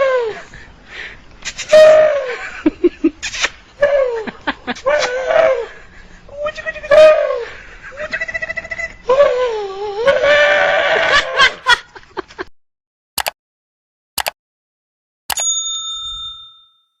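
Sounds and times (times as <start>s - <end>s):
bell-like ding: 15.3s - 17.0s.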